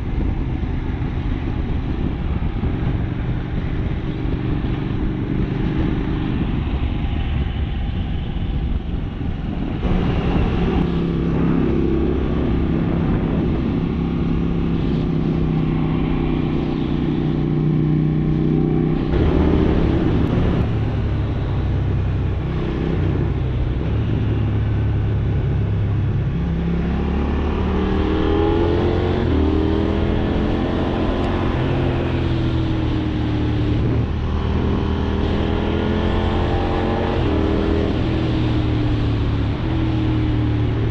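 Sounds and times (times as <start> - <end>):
road and wind noise: 0.0 - 40.9
motorcycle engine revving: 9.8 - 40.9.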